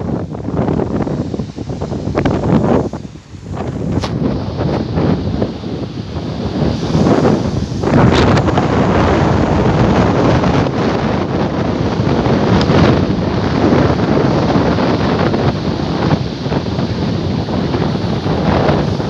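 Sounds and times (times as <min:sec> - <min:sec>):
sea waves breaking on shore: 0:00.0 - 0:19.0
wind buffeting microphone: 0:00.0 - 0:19.0.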